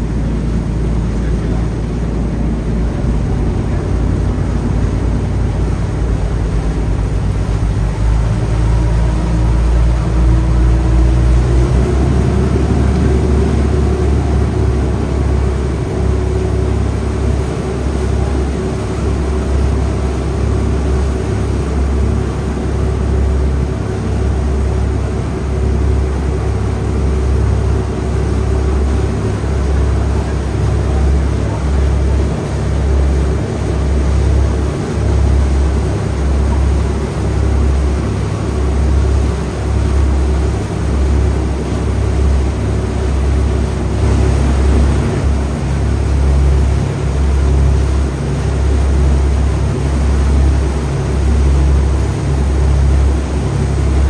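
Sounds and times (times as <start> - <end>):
ferry engines rumbling: 0.0 - 54.0
humming drone rising in pitch: 1.3 - 16.8.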